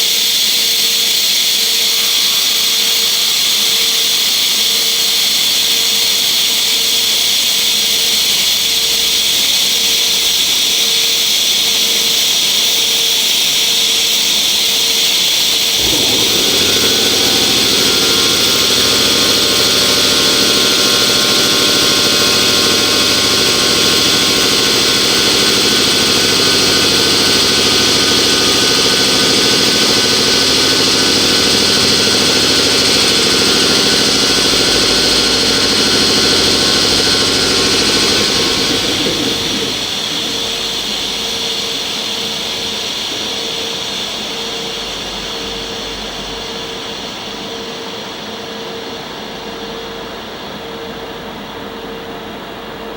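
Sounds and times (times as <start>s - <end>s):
locomotive motors whirring: 15.7s - 47.0s.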